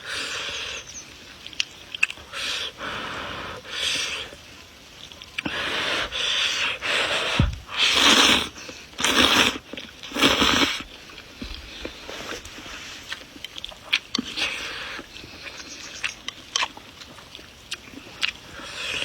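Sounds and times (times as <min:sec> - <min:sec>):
wet chewing: 0:00.2 - 0:19.0
person slurping noodles: 0:07.0 - 0:10.8.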